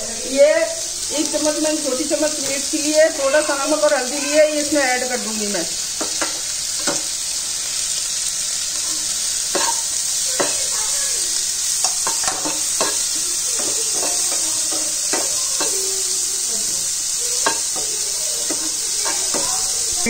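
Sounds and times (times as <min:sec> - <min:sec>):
vegetables sizzling in butter: 0:00.0 - 0:20.0
spatula scraping and knocking pan: 0:06.0 - 0:07.2, 0:08.8 - 0:11.0, 0:11.8 - 0:15.9, 0:17.3 - 0:19.9.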